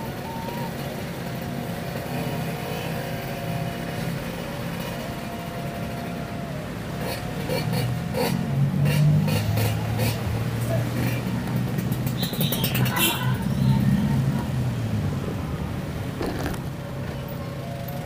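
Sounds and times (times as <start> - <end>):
motorcycle engine running: 16.2 - 16.9.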